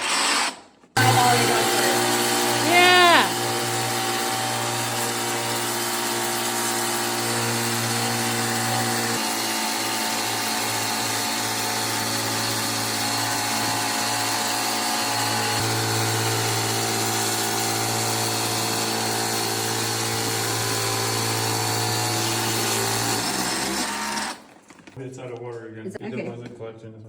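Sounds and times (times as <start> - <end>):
pressure washer motor humming: 1.0 - 24.6.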